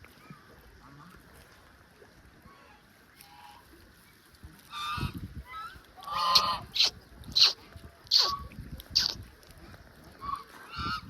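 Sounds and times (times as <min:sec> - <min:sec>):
waterfowl honking: 0:04.7 - 0:06.9.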